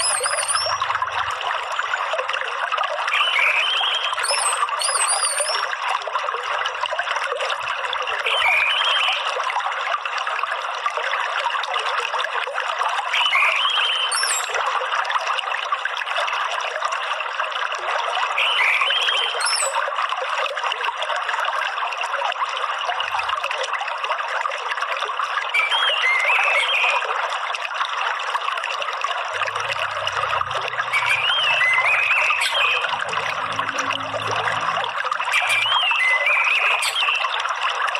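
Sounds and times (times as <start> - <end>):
bird chirping: 0.0 - 0.8, 3.2 - 5.6, 13.2 - 14.6, 18.4 - 19.8, 30.8 - 33.9, 35.3 - 37.2
water trickling: 0.0 - 37.9.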